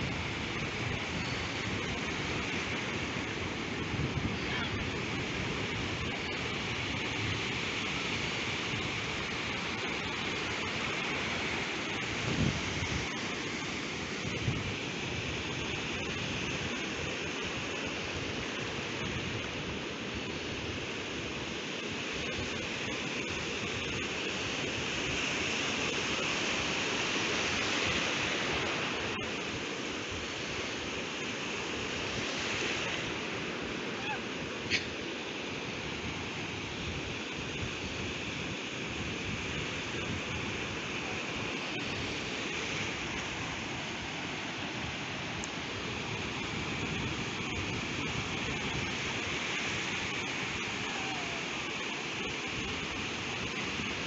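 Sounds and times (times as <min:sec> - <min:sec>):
ocean surf washing onto beach: 0:00.0 - 0:54.0.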